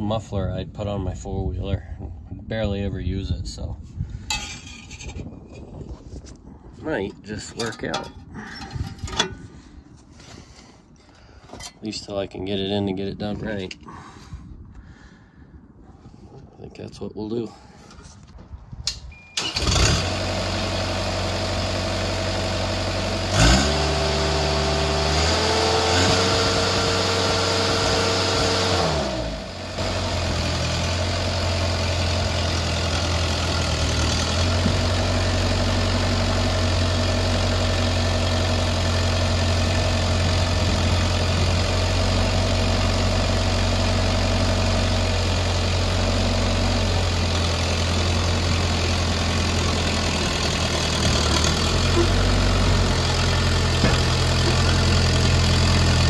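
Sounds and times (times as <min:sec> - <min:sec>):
excavator diesel engine idling: 0:29.4 - 0:56.0.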